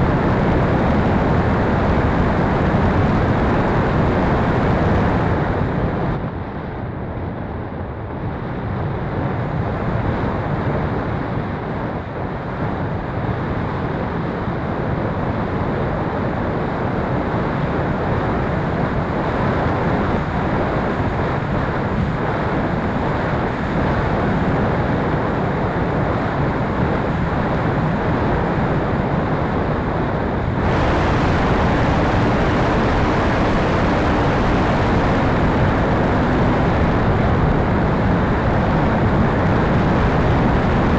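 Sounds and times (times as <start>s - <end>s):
wind buffeting microphone: 0.0s - 6.2s, 17.0s - 40.9s.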